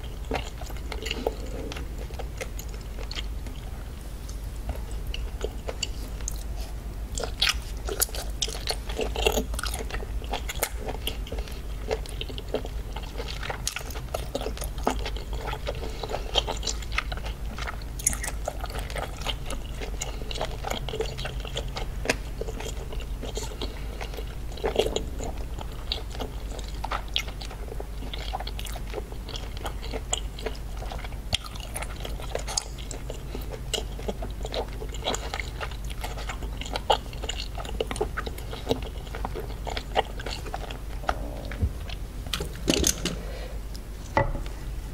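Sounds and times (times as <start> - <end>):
person chewing wetly: 0.0 - 43.9
steady low hum: 0.0 - 44.9.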